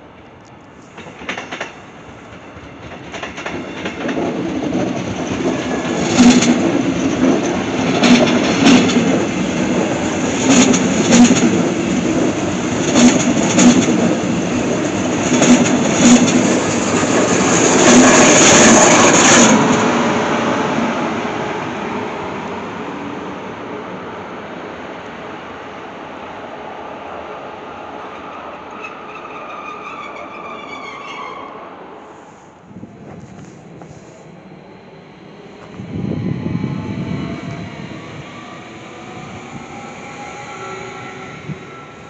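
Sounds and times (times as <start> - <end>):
train rolling past: 0.0 - 42.0
wheels clacking on rail joints: 0.8 - 19.9.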